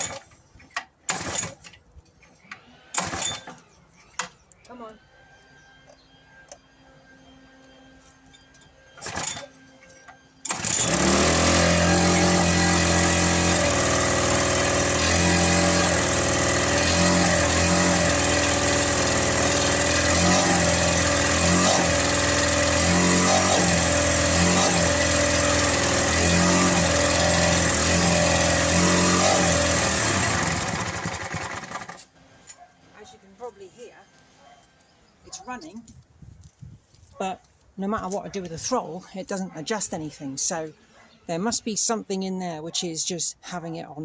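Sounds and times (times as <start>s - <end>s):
lawnmower engine running fast: 10.4s - 32.0s.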